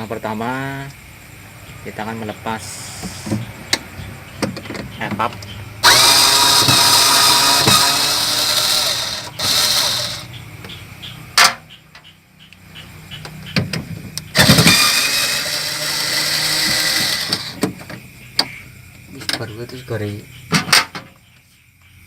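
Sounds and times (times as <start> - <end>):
power drill-driver running: 5.8 - 10.3, 14.4 - 17.6.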